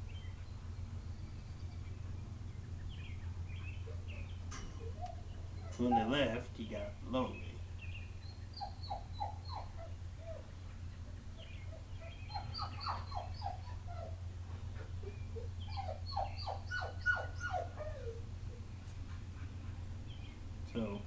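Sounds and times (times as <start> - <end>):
dog whining and yelping: 3.8 - 6.3, 8.5 - 18.8.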